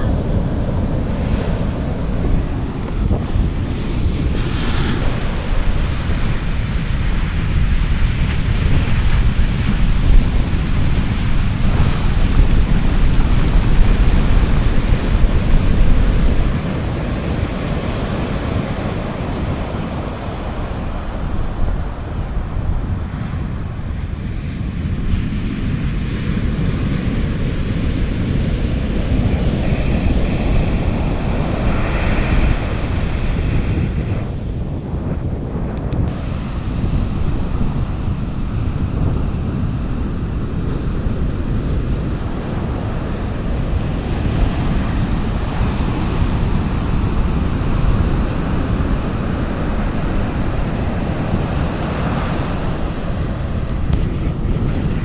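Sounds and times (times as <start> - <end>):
sea waves washing onto beach: 0.0 - 55.0
wind buffeting microphone: 0.0 - 55.0.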